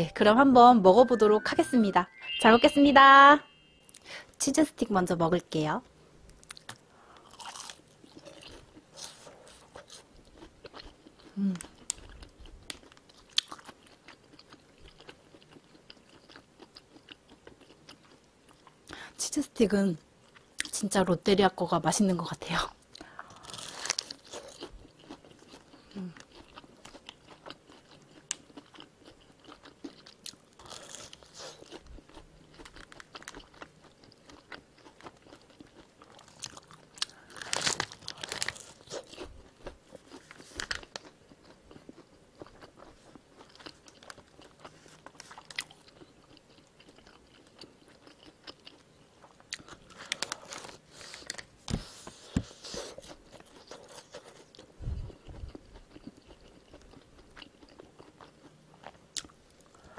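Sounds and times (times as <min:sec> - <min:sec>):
quiet chewing: 0:06.3 - 0:19.0, 0:22.9 - 0:59.9
crunchy bites into fried food: 0:06.5 - 0:10.9, 0:23.4 - 0:25.7, 0:26.3 - 0:41.2.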